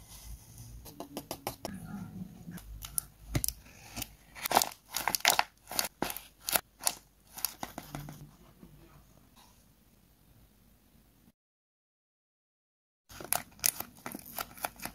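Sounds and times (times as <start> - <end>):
paper crackling: 13.1 - 14.9.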